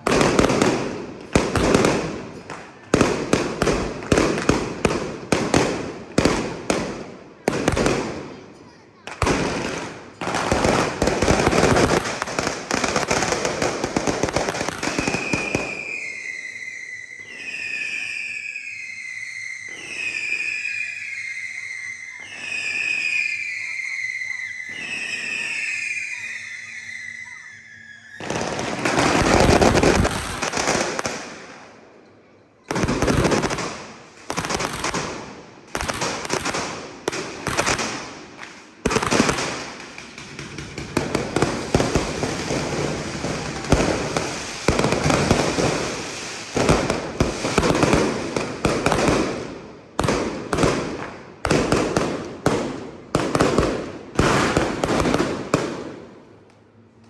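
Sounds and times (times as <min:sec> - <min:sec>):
fireworks bangs: 0:00.0 - 0:56.5
whistle-like tone: 0:15.0 - 0:28.5.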